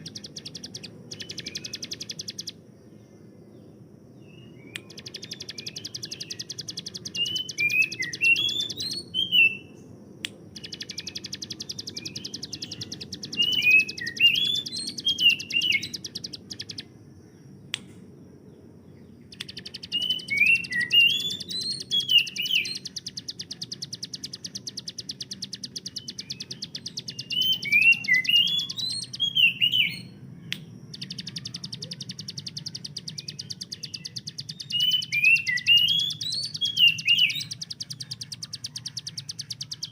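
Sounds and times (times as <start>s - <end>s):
bird singing rapid rattle: 0.0s - 2.6s, 4.7s - 9.6s, 10.5s - 16.9s, 19.2s - 39.9s
faint low hum: 0.0s - 39.9s.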